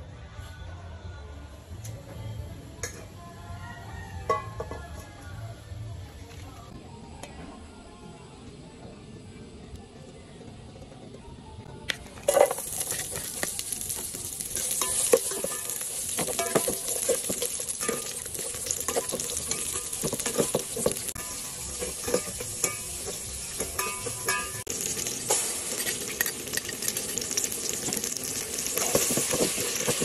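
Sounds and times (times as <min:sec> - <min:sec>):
metal ladle scraping a pot: 0:12.2 - 0:28.0
aromatics sizzling in hot oil: 0:12.2 - 0:30.0.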